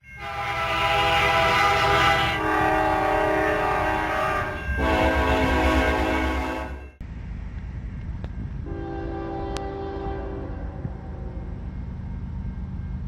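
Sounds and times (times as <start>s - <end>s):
locomotive air horn chord: 0.1s - 7.0s, 8.6s - 11.5s
low rumble: 2.4s - 13.0s.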